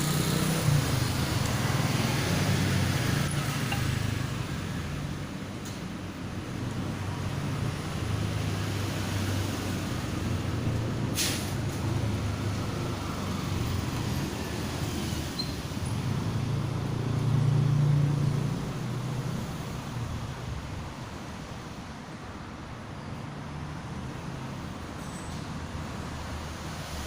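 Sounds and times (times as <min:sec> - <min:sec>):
vehicle engine hum: 0:00.0 - 0:21.0
brief hiss: 0:11.2 - 0:11.6.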